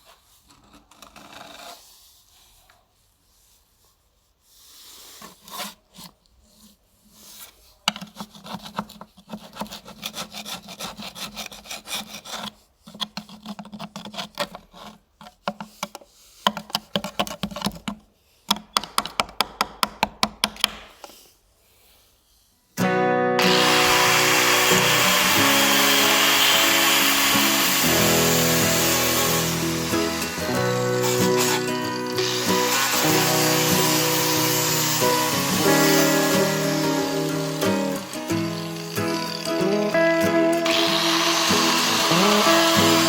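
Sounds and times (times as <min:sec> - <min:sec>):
tool rasping a workpiece: 0:07.9 - 0:15.7, 0:23.4 - 0:39.8, 0:40.7 - 0:43.0.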